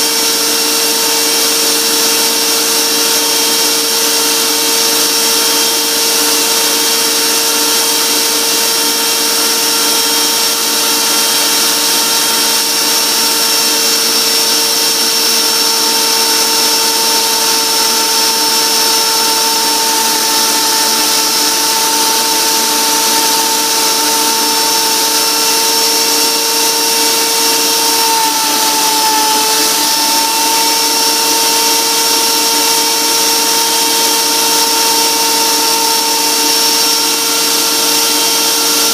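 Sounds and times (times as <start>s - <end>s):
grinding noise: 0.0s - 38.9s
high machine whine: 0.0s - 38.9s.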